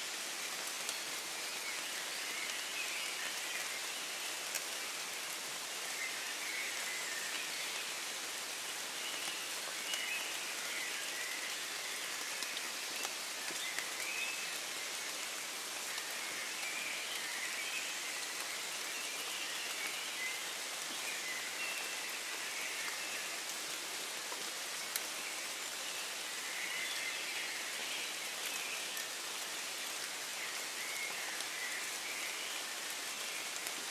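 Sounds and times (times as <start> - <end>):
steady rain falling: 0.0 - 33.9.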